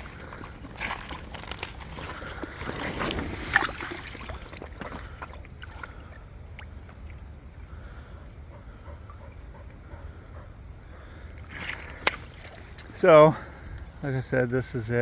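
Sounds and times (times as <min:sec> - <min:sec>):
running water: 0:00.0 - 0:07.4
creek water splashing: 0:00.0 - 0:08.1, 0:11.4 - 0:13.5.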